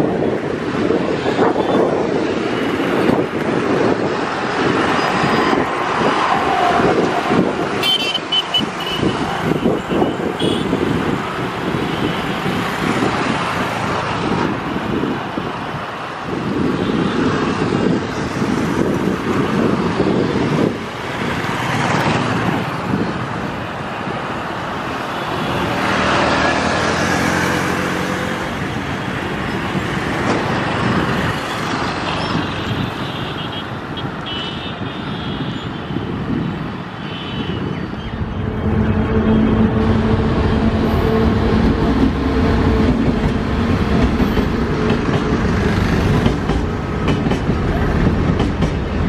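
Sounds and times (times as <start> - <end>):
locomotive hum: 37.8 - 49.0
train rumble: 37.9 - 49.0.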